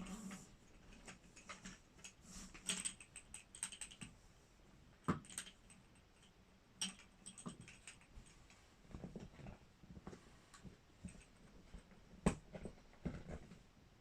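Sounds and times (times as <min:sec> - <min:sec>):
taps clicks and rustles of handling: 0:00.7 - 0:04.2.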